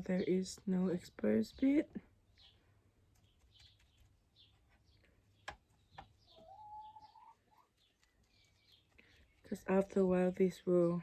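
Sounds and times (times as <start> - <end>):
faint bird chirps: 2.2 - 9.6.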